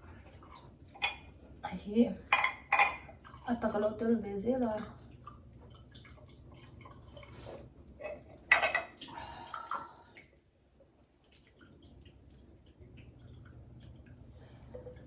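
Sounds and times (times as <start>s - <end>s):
dishes and cutlery clinking: 2.3s - 3.1s, 8.0s - 9.0s.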